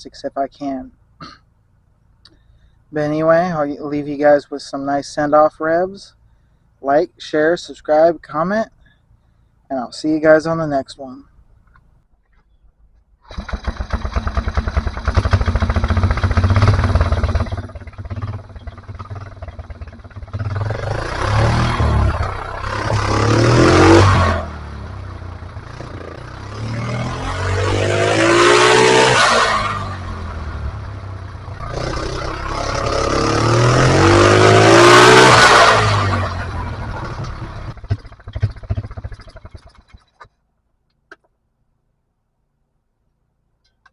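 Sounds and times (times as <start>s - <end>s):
atv engine revving: 13.3s - 40.3s.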